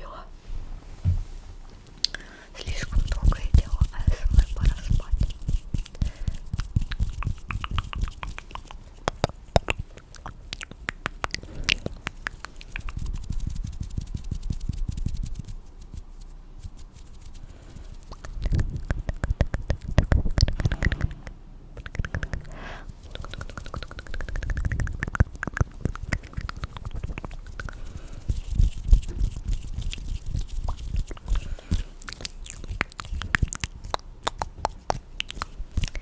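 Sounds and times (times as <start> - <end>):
low rubbing rumble: 18.4 - 26.1.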